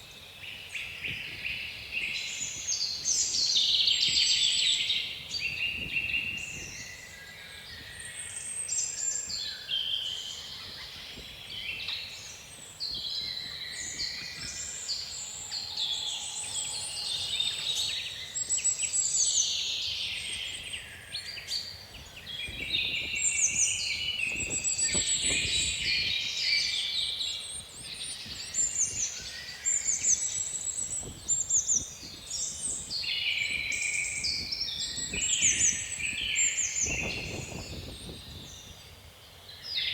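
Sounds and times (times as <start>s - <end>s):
songbirds singing: 0.0s - 39.9s
faint wind rush: 21.9s - 26.4s, 30.7s - 39.1s.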